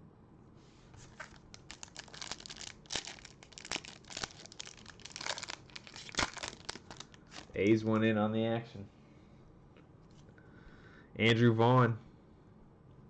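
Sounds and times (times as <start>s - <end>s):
plastic wrapper tearing and crinkling: 1.1s - 7.6s.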